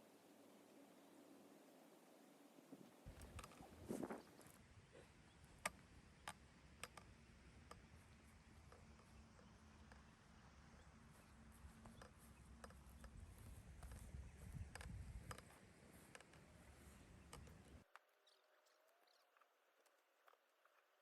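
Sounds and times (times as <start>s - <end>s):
faint low hum: 0.0s - 21.0s
sharp clicks: 5.4s - 18.0s.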